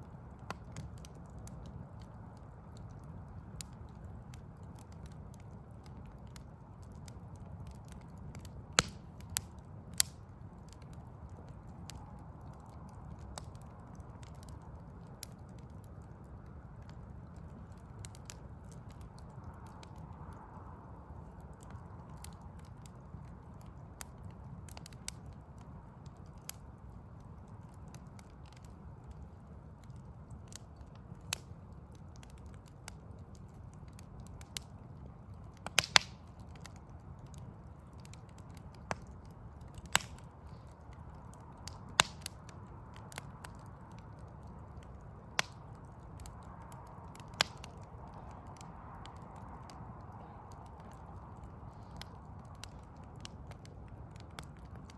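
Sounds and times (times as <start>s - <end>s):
low fire rumble: 0.0s - 54.9s
wood fire crackling and popping: 0.0s - 54.9s.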